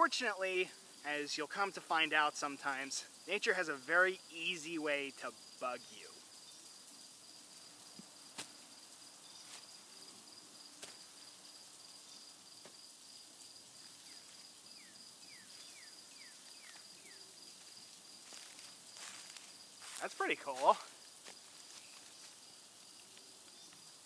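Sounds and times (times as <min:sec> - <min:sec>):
insect trilling: 0:00.0 - 0:24.0
bird chirping: 0:14.0 - 0:17.4.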